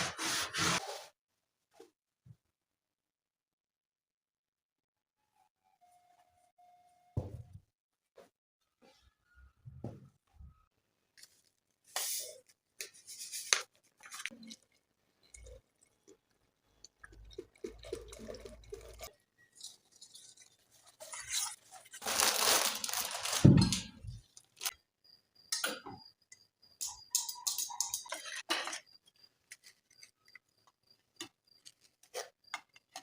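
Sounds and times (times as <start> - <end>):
rustling of handled things: 17.2 - 24.7.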